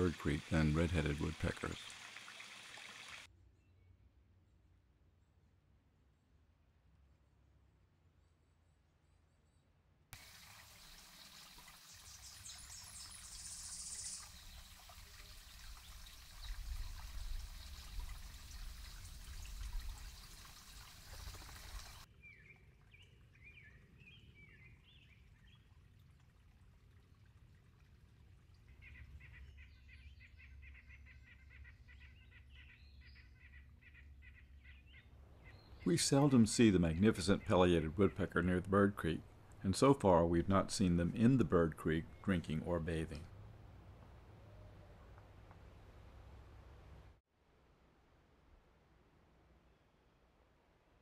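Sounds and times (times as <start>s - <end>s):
bird chirps: 11.8s - 17.9s, 28.8s - 36.4s.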